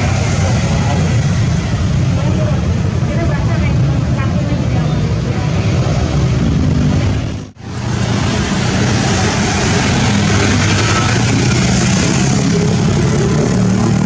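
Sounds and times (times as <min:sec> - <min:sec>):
jet engine noise: 0:00.0 - 0:14.0.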